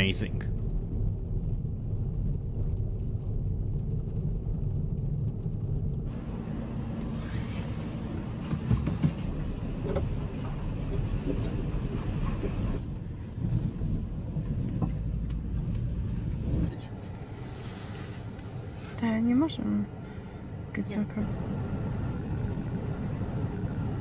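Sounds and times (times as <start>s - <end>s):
car cabin rumble: 0.0s - 24.0s
road and tyre hiss: 6.1s - 24.0s.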